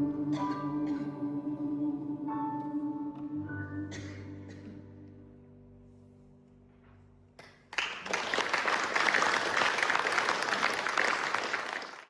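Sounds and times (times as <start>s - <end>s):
audience applauding: 7.4s - 12.0s.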